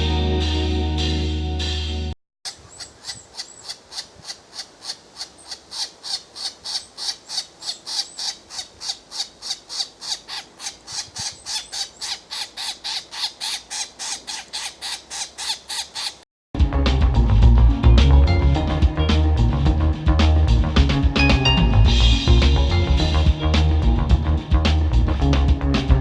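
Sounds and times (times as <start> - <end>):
bird squawking: 2.5 - 16.2.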